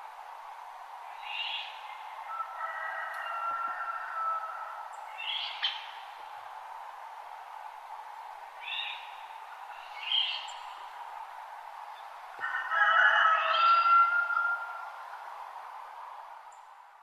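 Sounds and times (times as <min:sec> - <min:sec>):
background hiss: 0:00.0 - 0:12.5, 0:13.2 - 0:17.0
songbirds chirping and singing: 0:09.8 - 0:10.8.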